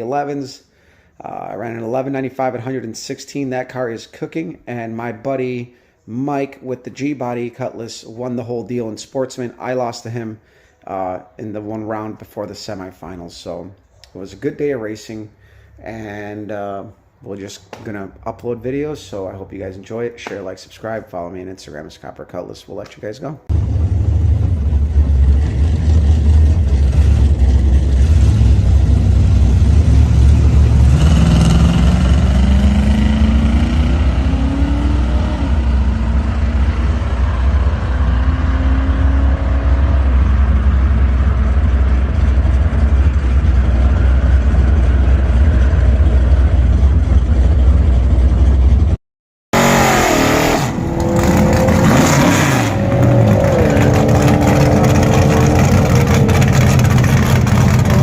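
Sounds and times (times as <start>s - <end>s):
race car engine revving: 23.5s - 48.8s, 49.6s - 58.0s.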